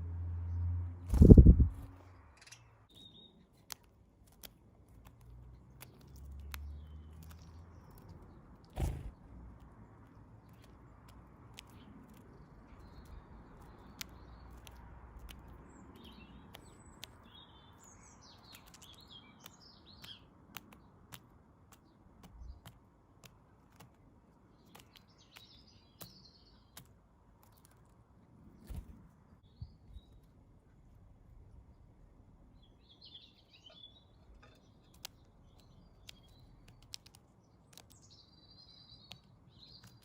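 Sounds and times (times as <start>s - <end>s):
low background rumble: 0.0s - 2.9s
small birds chirping: 0.4s - 40.0s
sharp clicks and taps: 18.4s - 27.9s, 34.3s - 38.1s.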